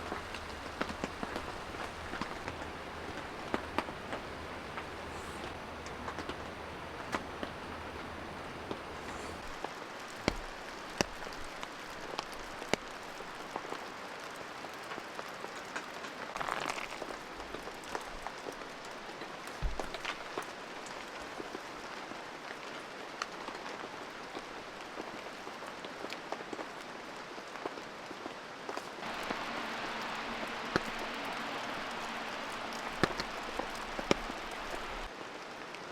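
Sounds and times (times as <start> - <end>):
heavy raindrops striking: 0.0 - 22.0, 29.0 - 35.1
steady rain: 0.0 - 35.9.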